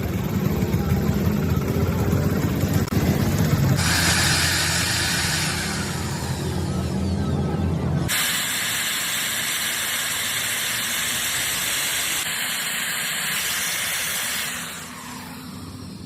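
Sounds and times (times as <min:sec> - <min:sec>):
loud steady hiss: 0:03.0 - 0:07.0, 0:08.0 - 0:16.0.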